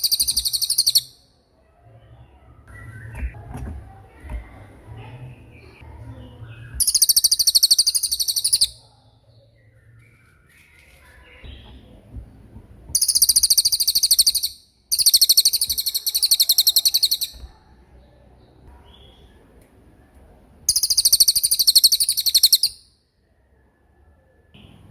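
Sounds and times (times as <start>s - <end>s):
songbird rattling trills: 0.0s - 1.1s, 6.8s - 8.8s, 13.0s - 17.4s, 20.7s - 22.8s
faint bird chirps: 0.0s - 3.4s, 5.0s - 12.2s, 12.9s - 19.5s, 20.6s - 24.9s.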